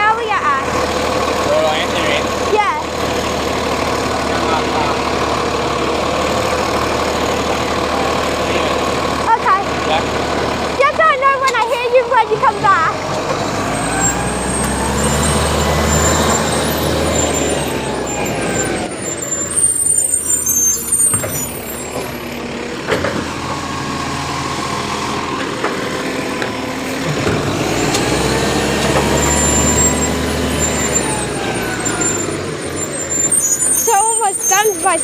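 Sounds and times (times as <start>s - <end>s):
garbage truck engine running: 0.0s - 35.0s
high-pitched squeals: 13.4s - 22.4s, 27.7s - 35.0s.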